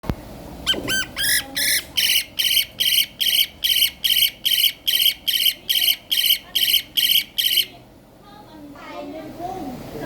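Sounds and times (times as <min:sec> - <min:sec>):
bird high-pitched calls: 0:00.6 - 0:07.8.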